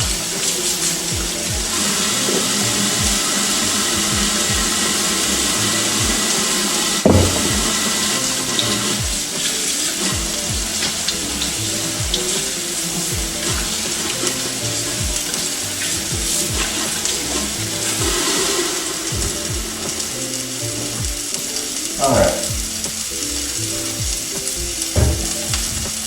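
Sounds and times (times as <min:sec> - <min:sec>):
background music with steady beat: 0:00.0 - 0:26.0
burger patty sizzling in a pan: 0:00.1 - 0:26.0.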